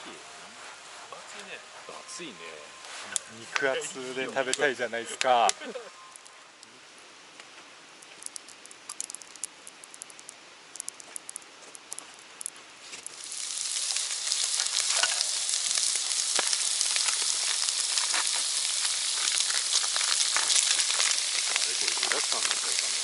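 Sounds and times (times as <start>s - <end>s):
food frying sizzle: 8.0s - 23.0s
hot pan pops and crackles: 8.0s - 23.0s.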